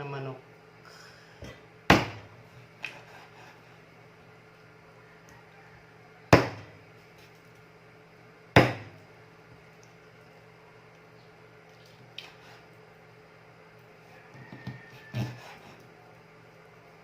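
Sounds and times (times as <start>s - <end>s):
knife chopping on cutting board: 1.9s - 3.3s, 6.3s - 6.8s, 8.6s - 9.0s, 14.6s - 15.7s.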